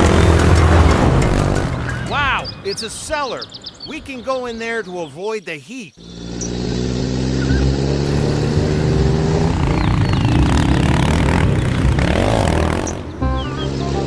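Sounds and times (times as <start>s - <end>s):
vehicle engine running: 0.0s - 2.6s, 6.0s - 14.0s
light music with stepped notes: 0.0s - 2.7s, 13.1s - 14.0s
rushing noise: 6.0s - 14.0s.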